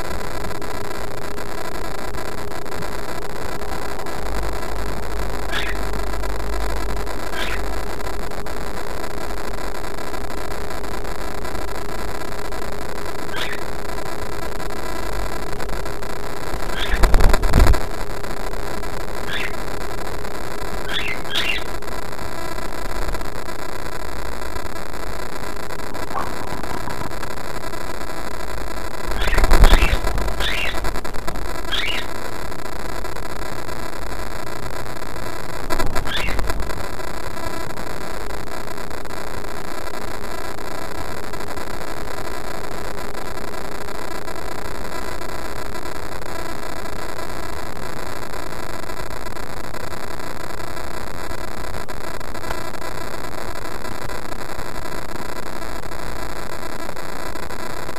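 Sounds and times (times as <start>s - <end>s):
steady loud hiss: 0.0s - 57.9s
parrot chirps: 5.4s - 6.0s, 7.2s - 7.8s, 13.3s - 13.7s, 16.6s - 17.7s, 19.2s - 19.6s, 20.7s - 21.8s, 26.0s - 27.1s, 29.1s - 32.2s, 35.8s - 36.7s.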